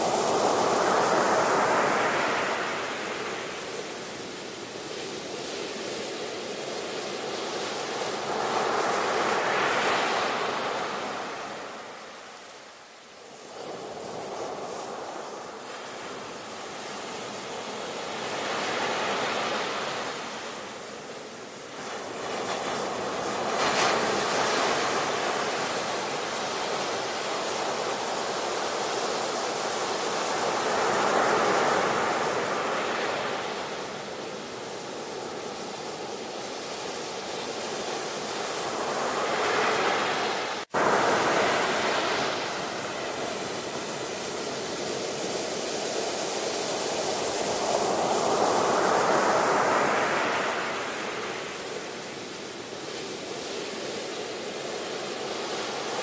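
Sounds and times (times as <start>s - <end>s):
ocean waves breaking: 21.5s - 56.0s.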